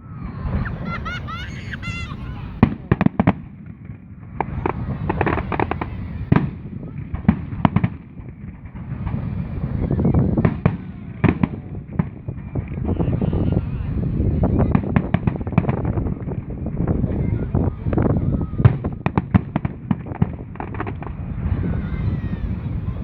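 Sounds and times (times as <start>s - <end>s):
crackling firework bursts: 0.0s - 23.0s.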